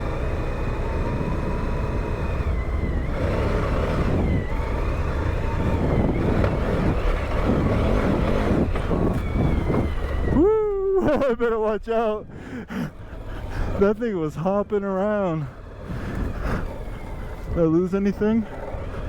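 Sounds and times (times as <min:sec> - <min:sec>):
motorcycle engine running: 0:00.0 - 0:11.8, 0:12.8 - 0:19.0
wind rush on microphone: 0:03.2 - 0:10.5.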